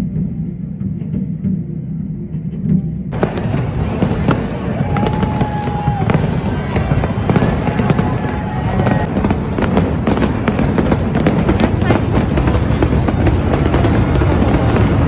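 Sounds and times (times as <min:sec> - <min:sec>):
fireworks crackling and popping: 0:03.1 - 0:15.0
fireworks rumble: 0:03.1 - 0:15.0.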